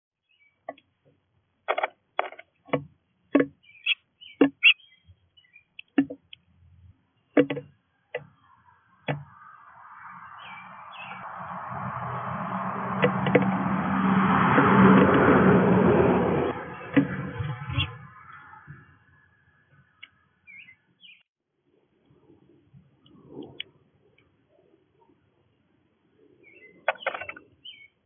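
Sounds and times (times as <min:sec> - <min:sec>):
vehicle engine and road noise: 0:00.6 - 0:21.1, 0:26.8 - 0:27.8
birds calling: 0:03.4 - 0:06.4, 0:07.2 - 0:12.2, 0:16.7 - 0:19.0, 0:20.0 - 0:21.2, 0:26.4 - 0:28.0.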